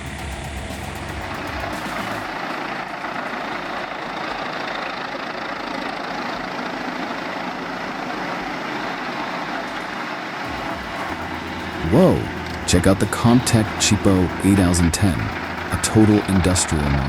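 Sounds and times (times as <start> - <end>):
heavy machine engine droning: 0.0 - 17.0.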